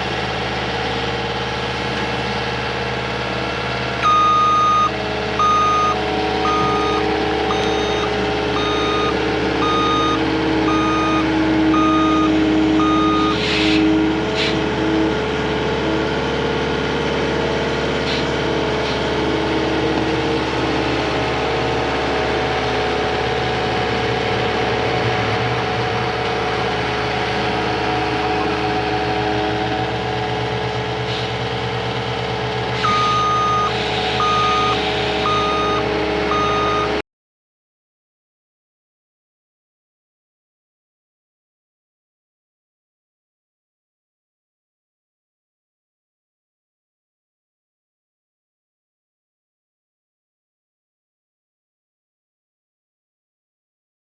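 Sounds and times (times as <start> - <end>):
track loader engine running: 0.0 - 37.0
reversing alarm beeping: 4.0 - 13.8, 32.8 - 37.0.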